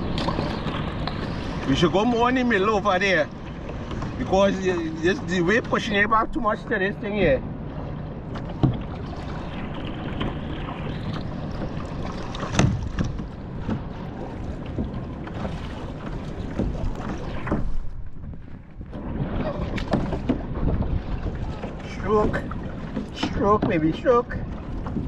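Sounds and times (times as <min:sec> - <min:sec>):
kayak paddle splashing water: 0:00.0 - 0:06.0, 0:07.6 - 0:25.0
wind noise on microphone: 0:16.5 - 0:21.6.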